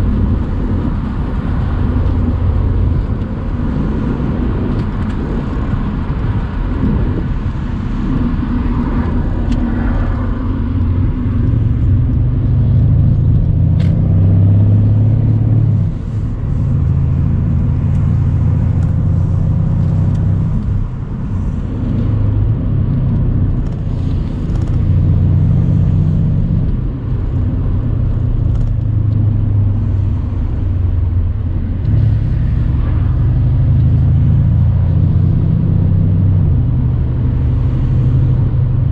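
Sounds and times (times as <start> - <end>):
car engine droning: 0.0 - 38.9.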